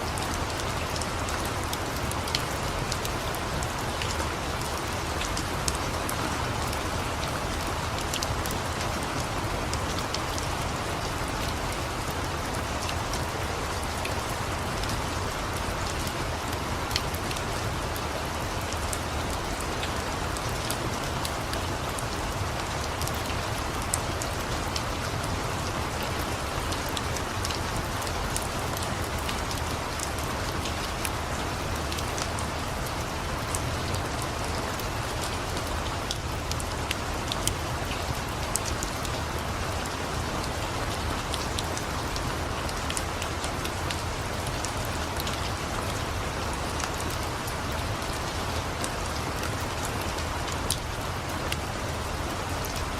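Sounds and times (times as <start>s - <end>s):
steady rain hiss: 0.0s - 52.9s.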